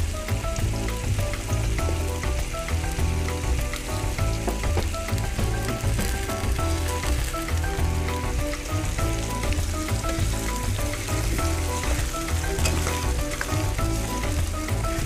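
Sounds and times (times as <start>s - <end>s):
food sizzling in hot oil: 0.0s - 15.0s
music with pulsing bass: 0.0s - 15.0s
spatula stirring in pan: 9.4s - 15.0s.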